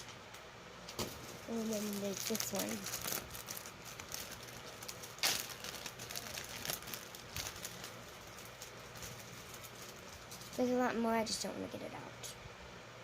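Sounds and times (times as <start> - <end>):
container handling clicks and crinkles: 0.9 - 10.8
loud crackle: 1.4 - 10.6.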